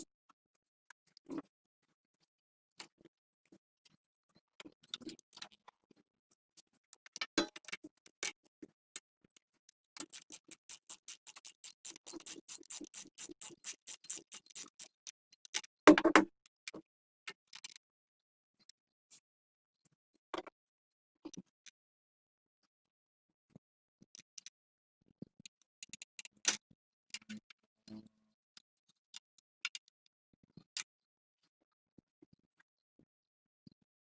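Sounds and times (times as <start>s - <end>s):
hand tool clicking: 10.0s - 14.9s.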